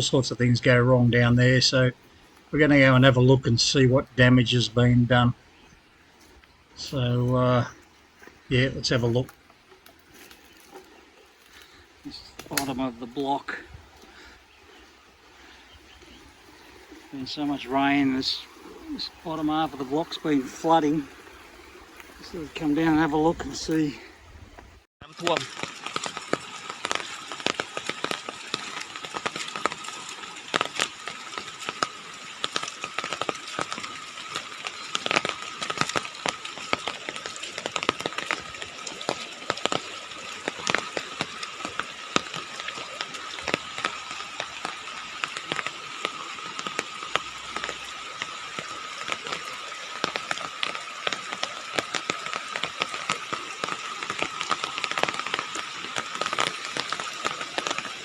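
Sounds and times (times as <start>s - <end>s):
irregular clicks and crackles: 1.3s - 3.2s, 5.5s - 58.0s.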